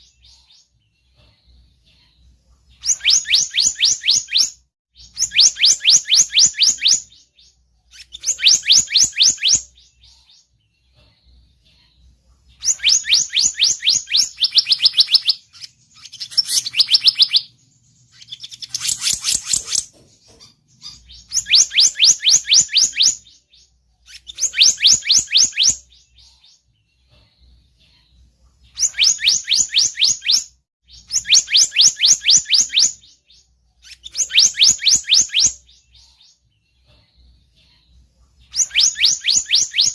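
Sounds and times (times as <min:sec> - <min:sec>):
bird call bursts of falling chirps: 0:02.8 - 0:07.4, 0:12.6 - 0:17.6, 0:20.8 - 0:23.5, 0:28.8 - 0:36.0, 0:38.5 - 0:39.9.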